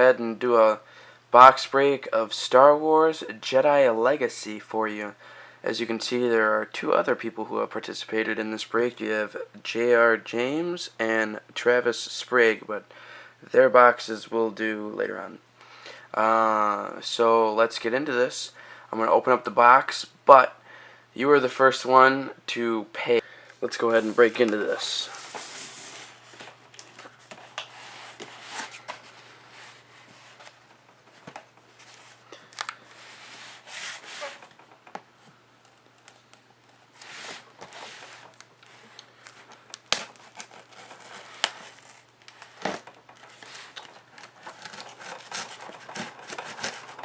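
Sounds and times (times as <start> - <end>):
cardboard tearing and crinkling: 36.9 - 47.0.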